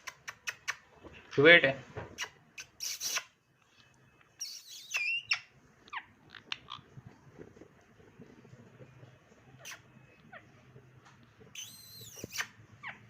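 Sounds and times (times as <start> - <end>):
parrot chirping: 0.0 - 0.9, 2.2 - 7.4, 8.0 - 13.0
parrot squawking: 2.2 - 3.4, 4.4 - 7.0, 9.4 - 10.8, 11.5 - 13.0.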